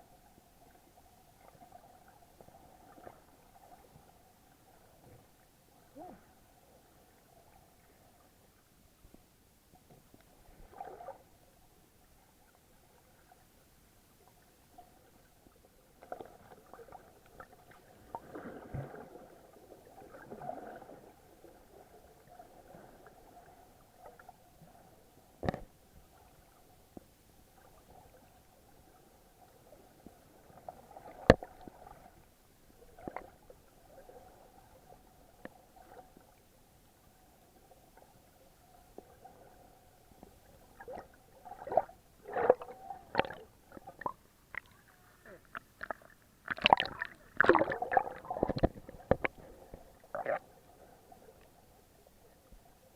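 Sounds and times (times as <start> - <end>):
underwater gurgling and bubbling: 16.0 - 24.9, 40.5 - 44.7, 45.3 - 51.3.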